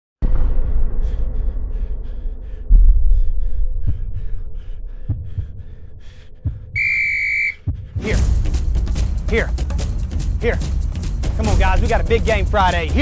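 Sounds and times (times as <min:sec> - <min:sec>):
low rumble: 0:00.2 - 0:06.8
deep heartbeat-like thumps: 0:00.2 - 0:13.0.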